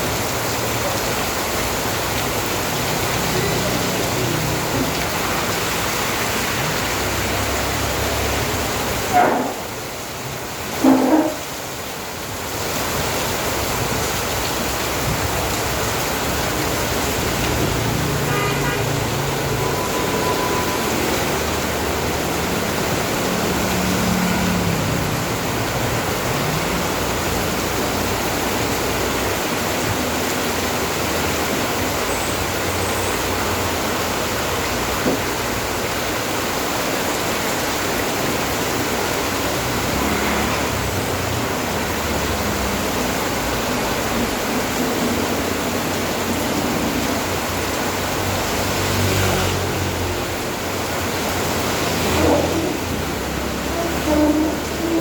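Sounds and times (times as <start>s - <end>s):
steady rain: 0.0s - 55.0s
vehicles passing: 0.0s - 55.0s
short horn toot: 53.7s - 55.0s.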